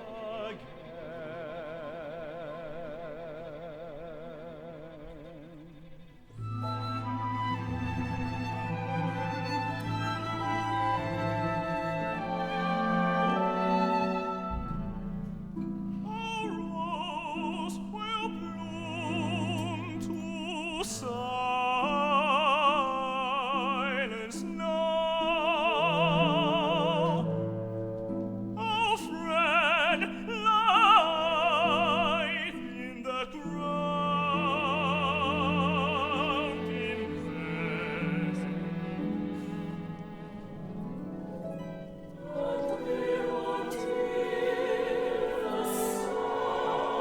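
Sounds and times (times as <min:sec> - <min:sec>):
operatic singing with vibrato: 0:00.0 - 0:15.1, 0:15.9 - 0:28.0, 0:28.6 - 0:47.0
instrumental ensemble low notes: 0:06.4 - 0:16.1.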